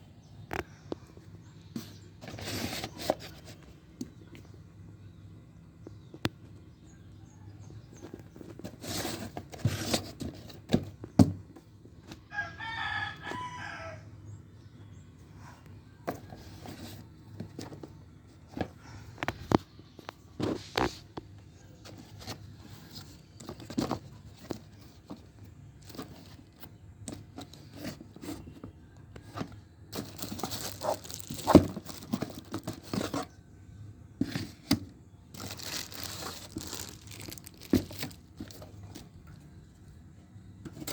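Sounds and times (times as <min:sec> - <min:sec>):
plastic and cardboard rustling: 0:01.7 - 0:04.5, 0:08.0 - 0:12.3, 0:16.0 - 0:39.8, 0:40.6 - 0:40.9.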